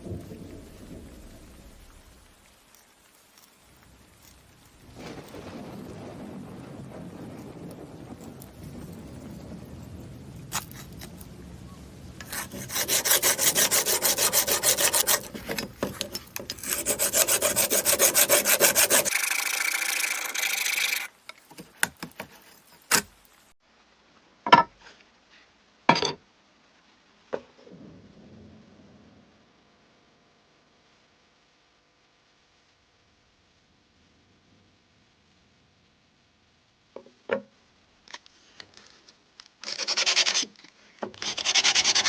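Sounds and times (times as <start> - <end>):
harsh scraping: 8.0 - 11.3, 12.2 - 21.1
sanding strokes on a knife: 12.2 - 21.1, 39.7 - 40.5, 41.2 - 42.0.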